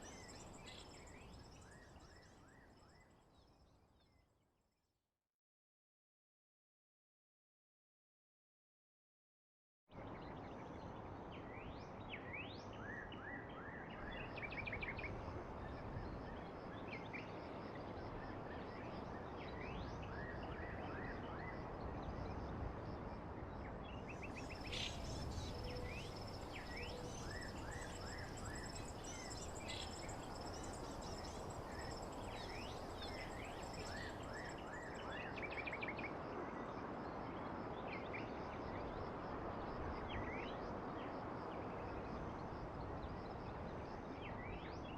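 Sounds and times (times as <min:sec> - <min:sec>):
songbirds chirping: 0:00.0 - 0:04.2, 0:23.9 - 0:36.0
outdoor ambience hiss: 0:21.7 - 0:44.9.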